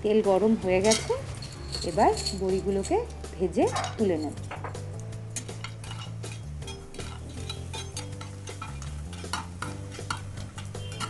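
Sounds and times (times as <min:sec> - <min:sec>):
food crackling in hot oil: 0:04.2 - 0:11.0
spatula scraping a pan: 0:05.4 - 0:11.0.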